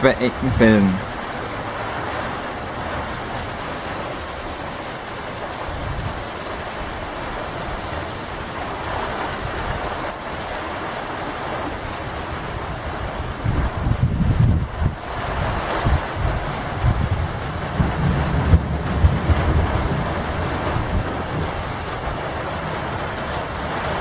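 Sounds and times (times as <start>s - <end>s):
steady rain: 0.0s - 24.0s.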